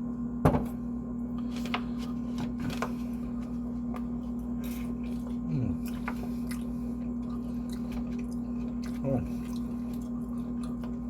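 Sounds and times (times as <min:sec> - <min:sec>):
low electrical hum: 0:00.0 - 0:11.0
chewing and wet mouth sounds: 0:03.9 - 0:11.0.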